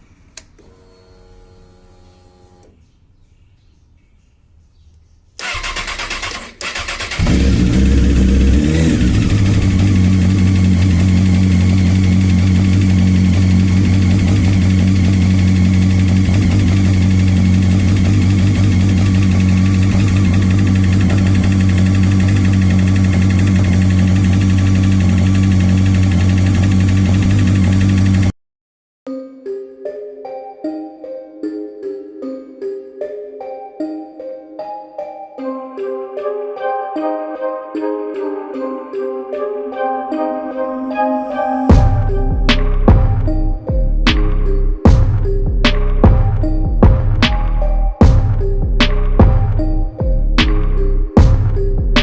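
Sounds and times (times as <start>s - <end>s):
electric starter cranking: 5.4s - 28.3s
motorcycle engine idling: 5.4s - 28.3s.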